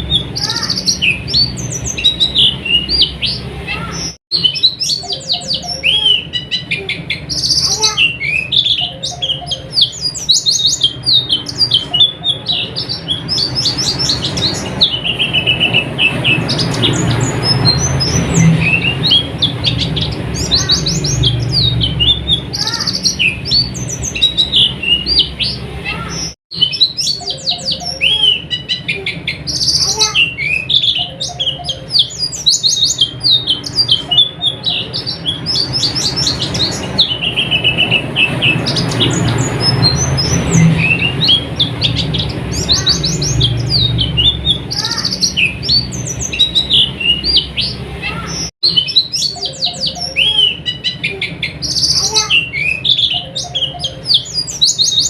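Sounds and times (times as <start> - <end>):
bird chattering trills: 0.0 - 55.0.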